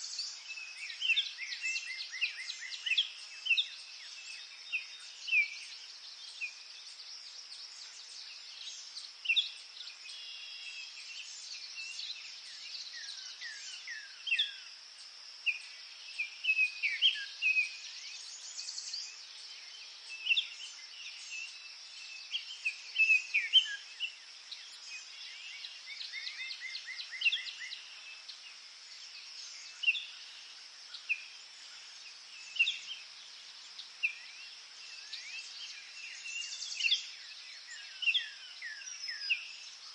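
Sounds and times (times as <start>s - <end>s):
steady high-pitched hiss: 0.0s - 39.9s
birds chirping and whistling: 22.3s - 24.1s.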